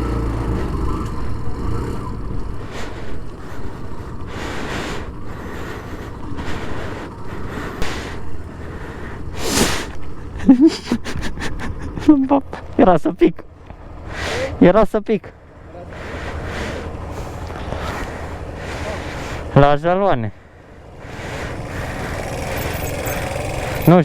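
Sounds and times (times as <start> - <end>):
low rumbling background: 0.0 - 24.0
heavy breathing into microphone: 2.2 - 12.0, 13.6 - 14.6, 15.3 - 19.6, 20.3 - 24.0.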